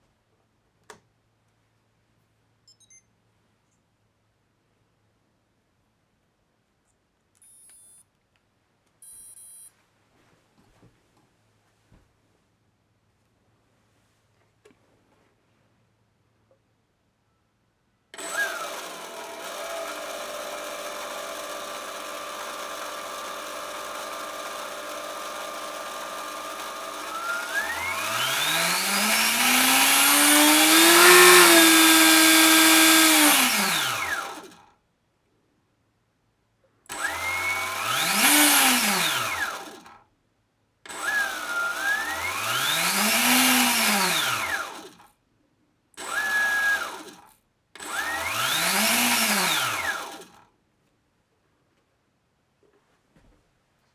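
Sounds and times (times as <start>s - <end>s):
electric motor whine: 18.2s - 34.5s, 36.9s - 39.8s, 40.9s - 44.9s, 47.8s - 50.3s.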